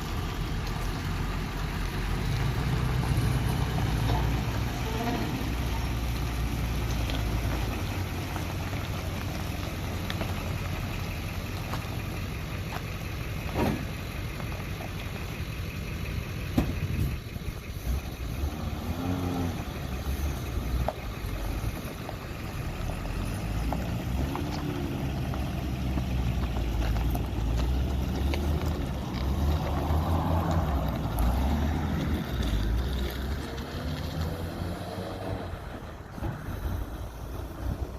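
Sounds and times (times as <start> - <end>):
truck engine idling: 0.0 - 34.7, 35.4 - 37.9
sharp engine knocks: 16.5 - 17.2.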